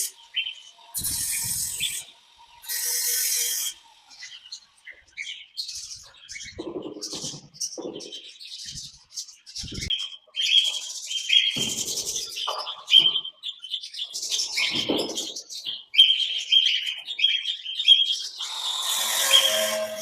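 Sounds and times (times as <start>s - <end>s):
parrots chirping: 0.0s - 8.2s, 15.9s - 20.0s.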